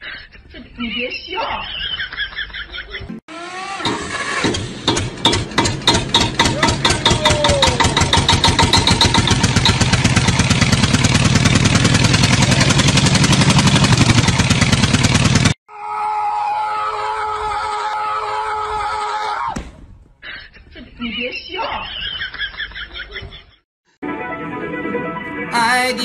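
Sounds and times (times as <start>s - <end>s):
engine chugging: 3.3s - 15.6s.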